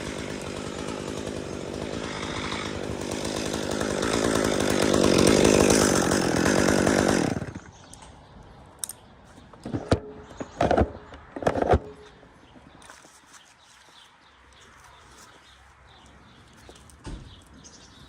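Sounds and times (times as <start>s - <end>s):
chainsaw cutting wood: 0.0s - 7.8s.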